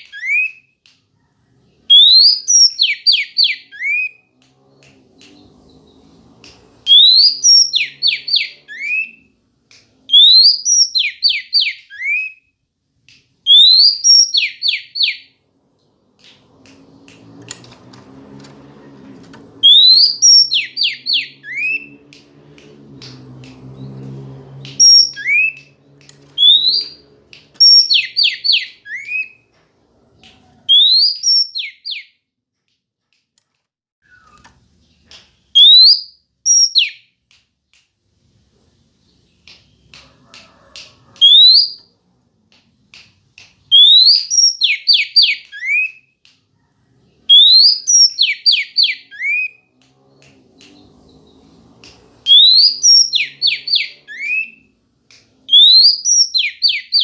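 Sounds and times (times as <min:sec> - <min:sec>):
bird whistled calling: 0:19.6 - 0:22.0, 0:24.8 - 0:25.6, 0:26.4 - 0:27.0, 0:34.0 - 0:34.4, 0:35.6 - 0:37.0, 0:43.7 - 0:46.0, 0:47.3 - 0:49.6, 0:52.3 - 0:54.6.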